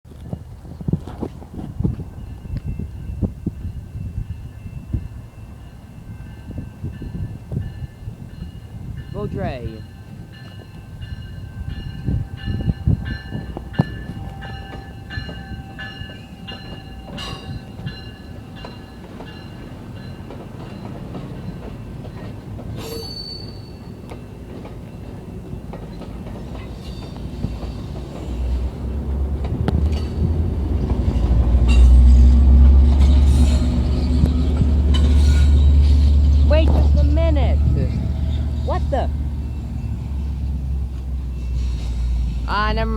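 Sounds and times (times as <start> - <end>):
heavy low locomotive rumble: 26.1 - 42.9.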